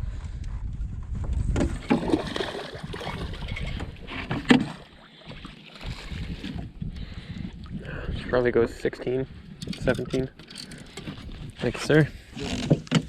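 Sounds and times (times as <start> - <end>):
wind rumbling on microphone: 0.0 - 4.7, 5.8 - 12.9
water noise around boat: 0.0 - 13.0.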